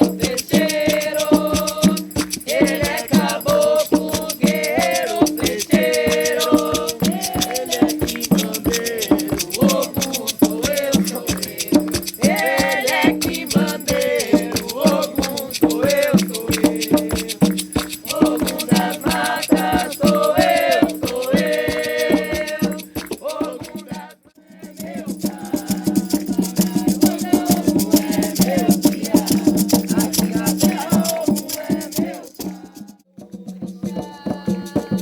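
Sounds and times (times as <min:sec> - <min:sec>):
rattle shaken rhythmically: 0:00.0 - 0:35.0
voices singing: 0:00.0 - 0:35.0.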